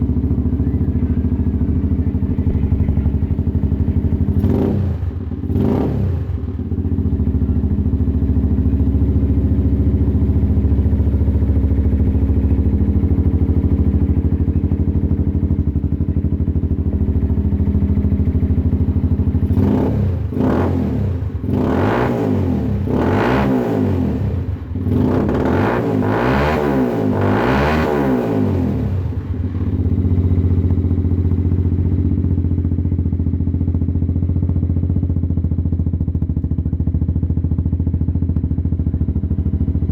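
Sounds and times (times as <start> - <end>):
motorcycle throttle blips: 0.0 - 8.8
motorcycle engine idling: 0.0 - 39.9.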